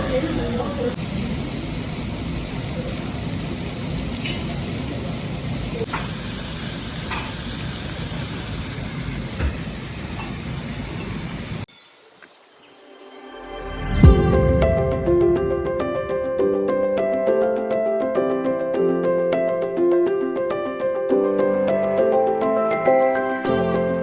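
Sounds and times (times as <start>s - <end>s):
food sizzling on hot plate: 0.0s - 11.7s
music: 12.7s - 24.0s.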